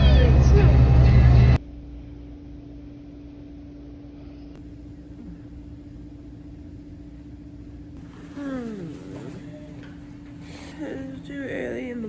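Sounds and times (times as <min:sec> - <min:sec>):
road rumble inside car: 0:00.0 - 0:01.6
constant low hum: 0:00.0 - 0:12.0.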